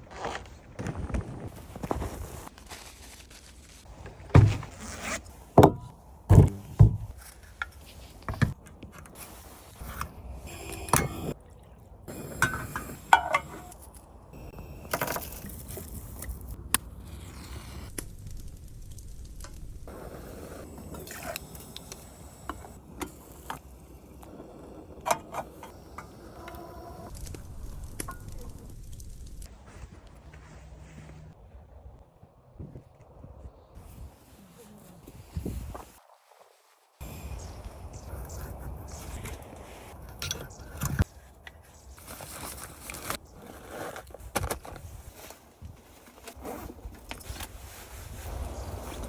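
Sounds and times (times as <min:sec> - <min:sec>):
camp gear scraping and clinking: 0:00.0 - 0:11.4, 0:12.1 - 0:16.6, 0:19.9 - 0:27.2, 0:37.0 - 0:49.0
loud thuds: 0:05.6 - 0:07.2.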